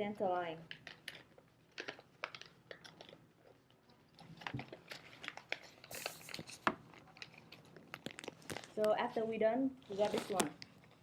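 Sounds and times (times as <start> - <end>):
paper crinkling as folded: 4.2 - 11.0.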